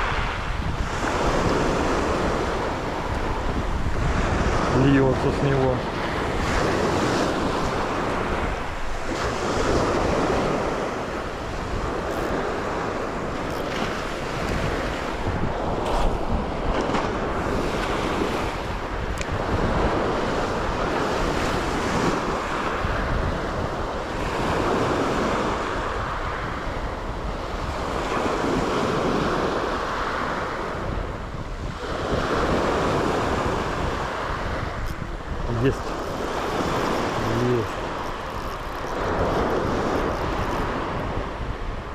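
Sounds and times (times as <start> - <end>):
surf washing onto shore: 0.0 - 41.9
wind buffeting microphone: 0.0 - 41.9.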